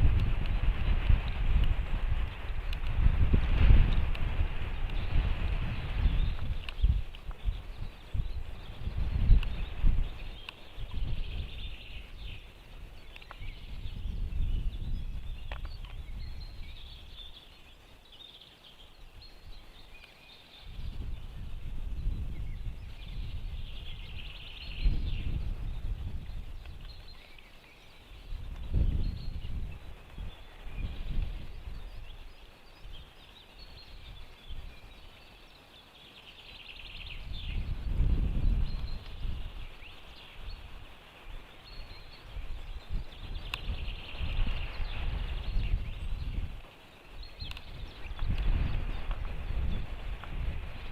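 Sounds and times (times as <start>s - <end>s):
small birds chirping: 0.0s - 50.9s
wind rumble on microphone: 0.0s - 50.9s.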